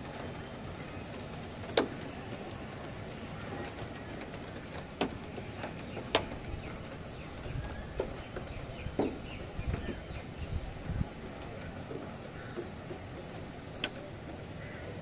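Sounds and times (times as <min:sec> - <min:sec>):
rain: 0:00.0 - 0:15.0
wind: 0:00.0 - 0:15.0.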